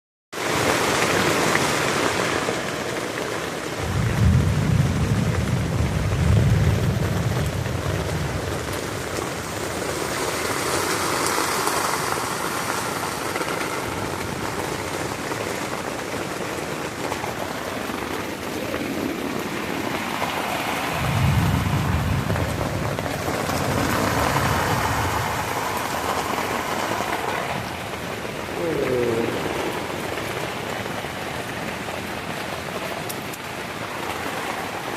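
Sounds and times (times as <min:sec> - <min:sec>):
heavy rain falling: 0:00.4 - 0:34.9
low rolls of thunder: 0:03.8 - 0:09.9, 0:13.3 - 0:34.8.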